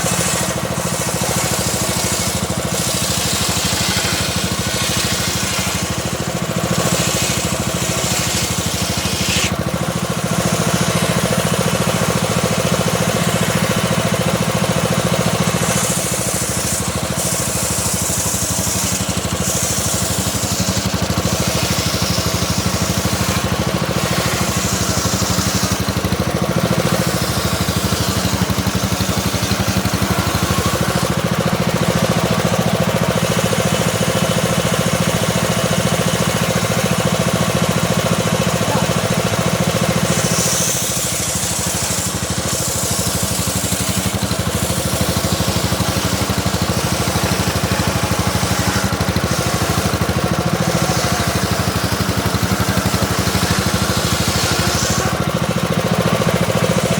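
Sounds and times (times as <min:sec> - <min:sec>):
circular saw motor drone: 0:00.0 - 0:56.9
saw blade cutting wood: 0:00.0 - 0:56.9.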